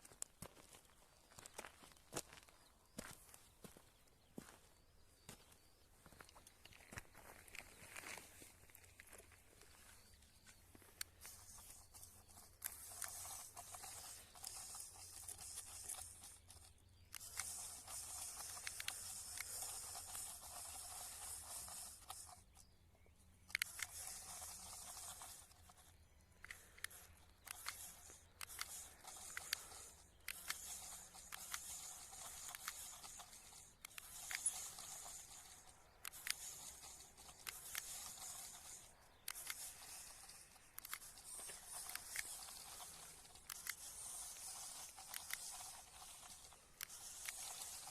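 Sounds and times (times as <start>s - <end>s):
toy tractor scraping hiss: 9.7s - 47.9s
sharp clicks: 10.0s - 47.9s.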